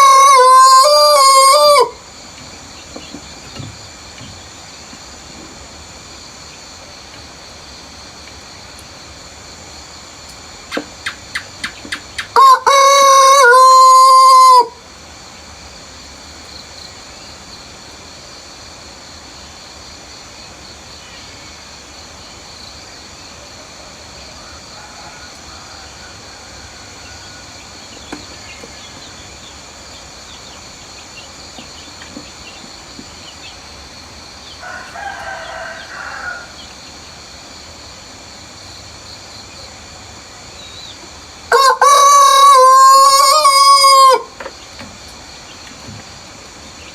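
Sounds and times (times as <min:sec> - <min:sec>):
rooster crowing: 0:00.0 - 0:02.0, 0:12.3 - 0:14.8, 0:24.2 - 0:27.7, 0:34.5 - 0:36.7, 0:41.5 - 0:44.4
distant rooster crowing: 0:00.0 - 0:02.1, 0:12.3 - 0:14.8, 0:23.9 - 0:27.8, 0:34.5 - 0:36.8, 0:41.5 - 0:44.4.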